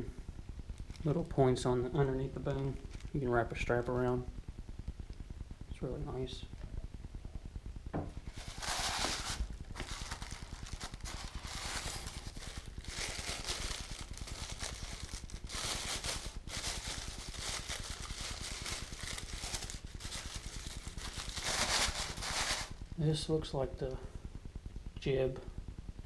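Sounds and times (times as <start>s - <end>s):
wrapping paper rustling: 8.3s - 22.8s.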